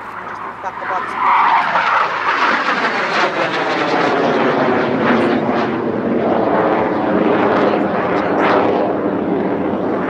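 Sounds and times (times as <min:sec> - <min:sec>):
jet roar: 0:00.0 - 0:10.0.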